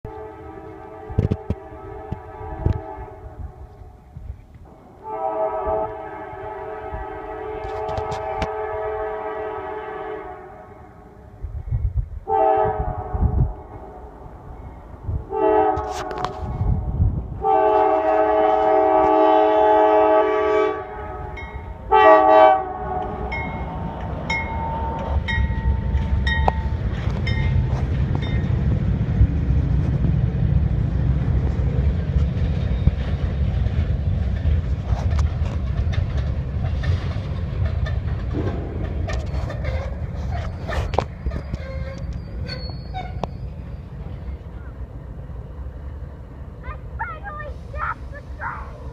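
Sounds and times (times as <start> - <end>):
train rumbling: 0.0 - 48.9
locomotive horn blasts: 0.1 - 3.7, 5.0 - 11.2, 12.3 - 13.6, 15.3 - 16.6, 17.4 - 23.6
train wheels clattering: 23.0 - 44.6.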